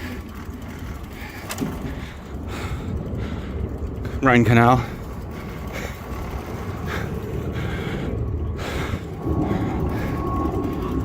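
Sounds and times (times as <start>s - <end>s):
faint steady whine: 0.0s - 11.0s
light rattles: 0.0s - 11.0s
wind and cycling ride noise: 0.0s - 11.0s.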